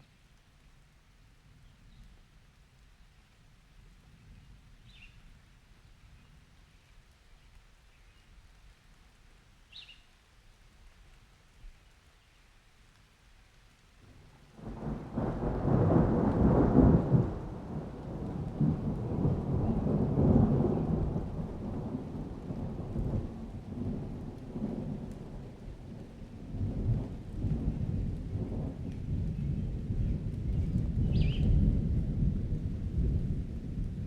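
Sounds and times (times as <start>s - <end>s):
rain: 0.0s - 34.0s
thunder rumbling: 14.2s - 34.0s.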